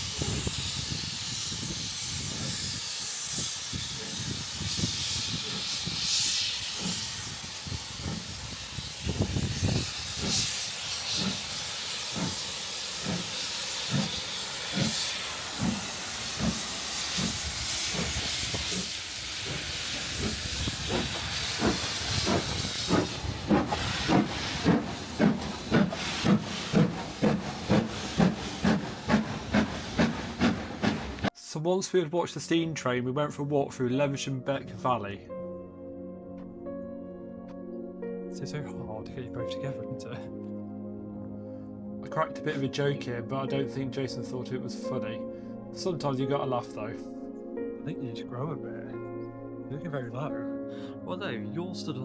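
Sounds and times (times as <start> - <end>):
steam hissing: 0.0 - 31.3
steam train puffs: 0.0 - 31.4
regular chugging beat: 11.1 - 31.3.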